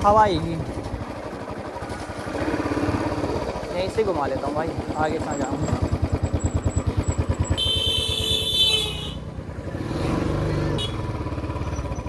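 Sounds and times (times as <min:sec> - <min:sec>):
motorcycle engine thumping: 0:00.0 - 0:09.6
vehicle horn: 0:07.5 - 0:09.4, 0:10.7 - 0:11.1.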